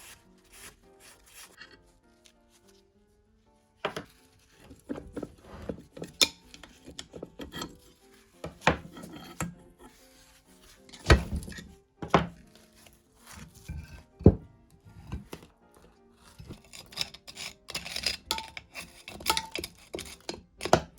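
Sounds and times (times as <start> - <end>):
background music: 0.0 - 20.9
metal scraping and rubbing: 3.9 - 11.8, 13.3 - 15.5, 16.3 - 20.7
metal parts knocking and clinking: 16.6 - 20.8.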